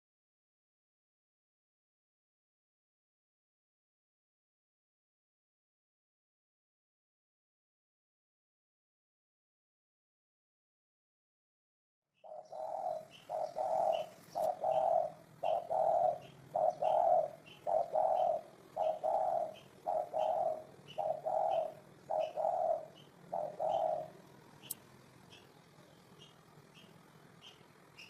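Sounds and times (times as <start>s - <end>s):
dove cooing: 12.2s - 24.8s.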